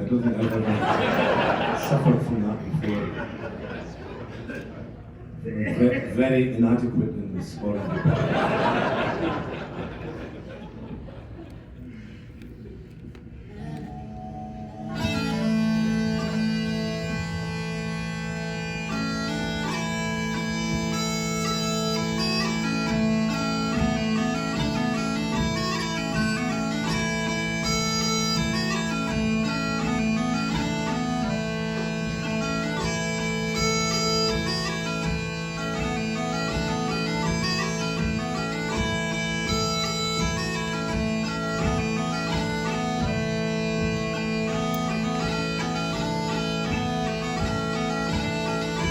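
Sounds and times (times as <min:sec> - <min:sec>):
bagpipe drones: 0:13.4 - 0:48.9
bagpipe melody: 0:13.5 - 0:48.9.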